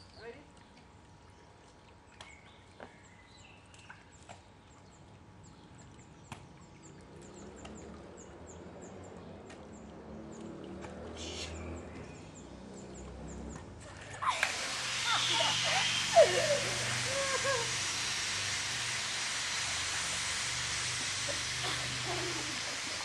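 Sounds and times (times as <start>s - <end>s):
brief hiss: 14.2s - 23.0s.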